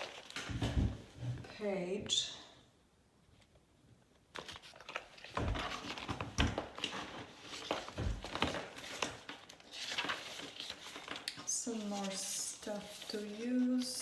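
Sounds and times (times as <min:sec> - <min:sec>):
paper pages rustling: 0:00.0 - 0:00.9, 0:04.2 - 0:14.0.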